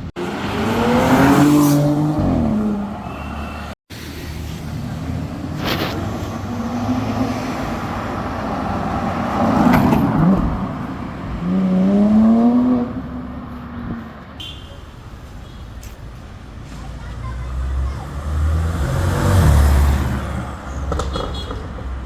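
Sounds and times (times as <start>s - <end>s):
cars driving past: 0.0s - 14.4s, 16.2s - 22.0s
car engine revving: 17.5s - 21.0s.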